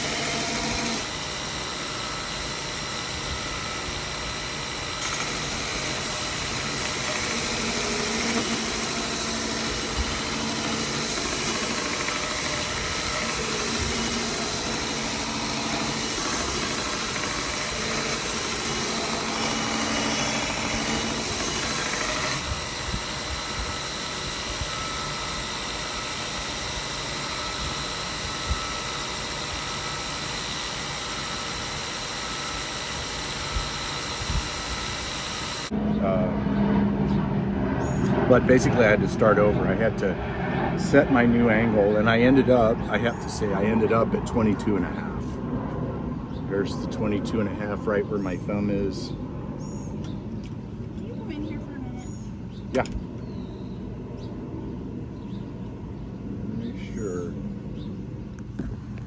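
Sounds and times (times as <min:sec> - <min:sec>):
belt grinder running: 0:00.0 - 0:35.8
blade grinding on belt: 0:00.0 - 0:35.8.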